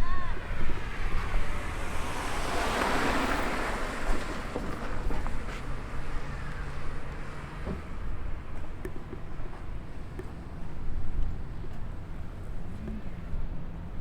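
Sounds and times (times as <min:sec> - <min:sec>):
rushing noise: 0:00.0 - 0:06.1.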